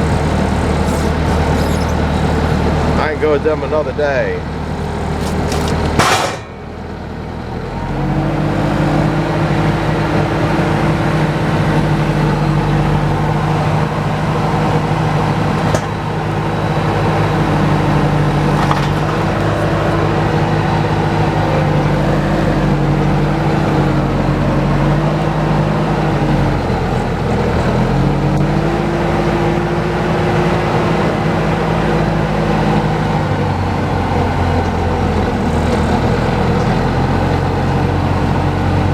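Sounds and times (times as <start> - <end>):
truck engine revving: 0.0 - 38.9
loud clatter: 4.8 - 7.0.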